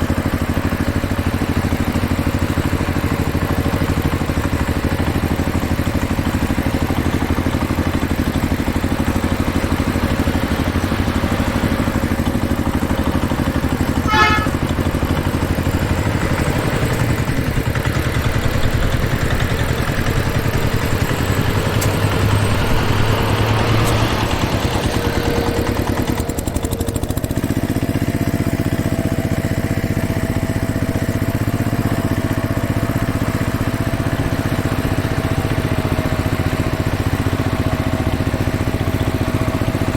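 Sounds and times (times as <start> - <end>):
engine running: 0.0 - 39.9
steady high tone: 14.0 - 14.7.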